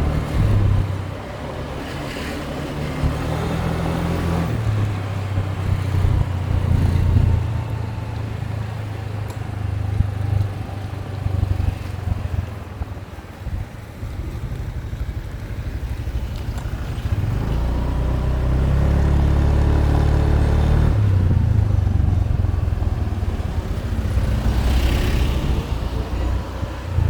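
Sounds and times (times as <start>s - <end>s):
motorbike engine running: 9.8s - 27.0s.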